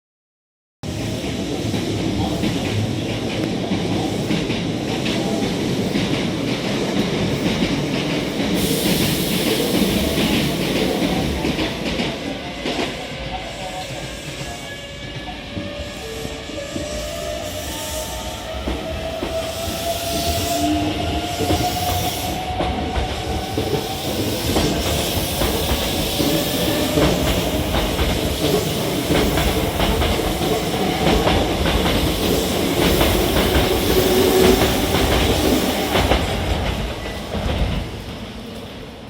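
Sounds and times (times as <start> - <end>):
train wheels clacking over rail joints: 21.2 - 38.2.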